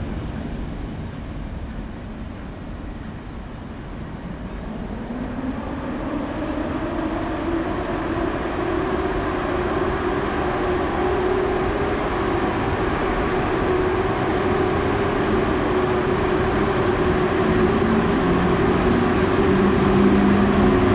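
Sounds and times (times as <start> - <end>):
train running rumble: 0.0 - 20.9
train motor whine rising: 5.7 - 20.9.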